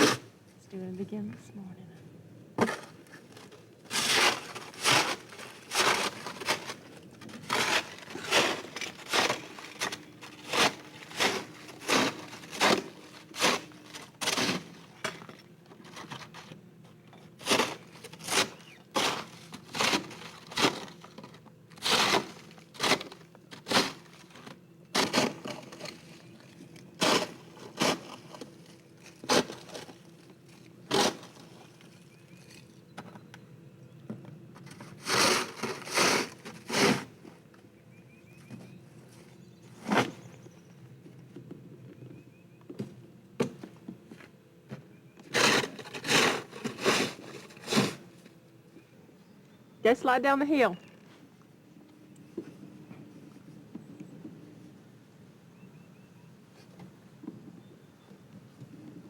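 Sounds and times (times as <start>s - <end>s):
footsteps crunching in deep snow: 3.9s - 14.8s.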